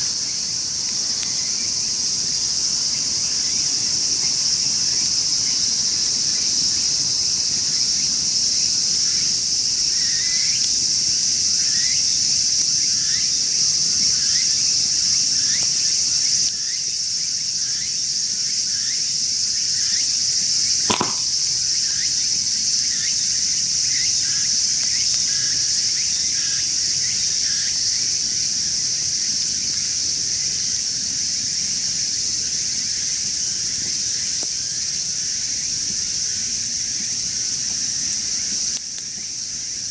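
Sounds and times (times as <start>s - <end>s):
insects chorus: 0.0s - 39.9s
sharp pop: 20.9s - 21.5s.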